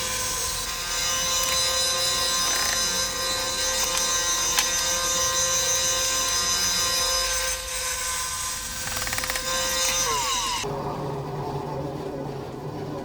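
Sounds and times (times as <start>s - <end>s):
saw blade cutting wood: 0.0s - 10.7s
bandsaw motor whine: 0.0s - 13.0s.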